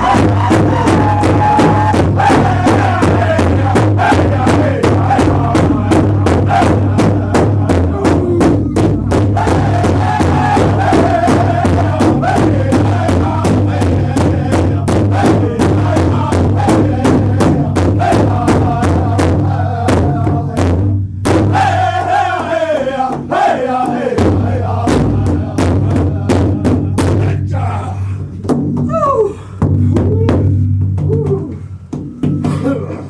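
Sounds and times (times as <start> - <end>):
shouted chant-like vocals: 0.0 - 20.8, 21.5 - 28.2
steady bass line: 0.0 - 21.8
rapid drum hits: 0.0 - 29.0.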